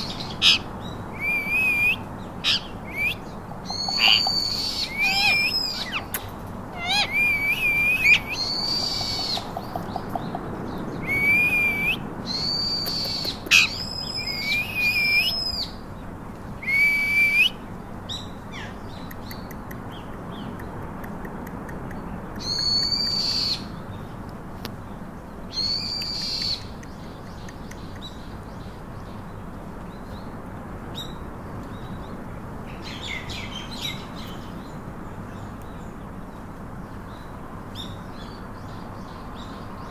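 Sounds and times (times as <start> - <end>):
parakeet squawking: 0.4 - 0.6, 3.7 - 9.6, 13.0 - 13.8.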